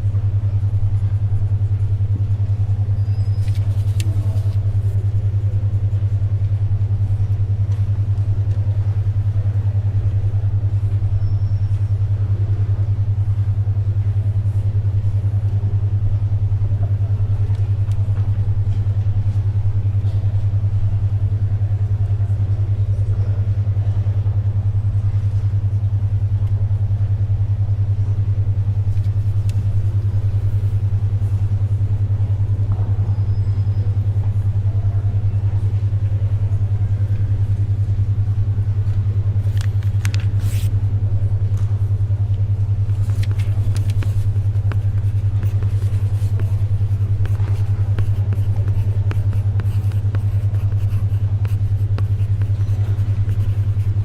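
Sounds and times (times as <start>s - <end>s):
faint library background noise: 0.0s - 54.0s
pages rustling: 3.4s - 5.0s, 39.4s - 40.7s, 42.9s - 54.0s.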